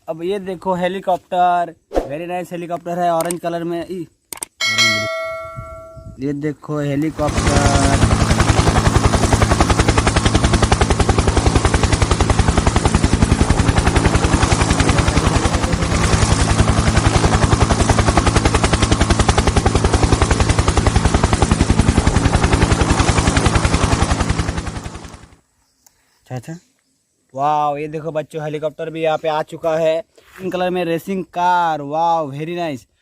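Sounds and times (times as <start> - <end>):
helicopter rotor chopping: 6.9 - 25.4.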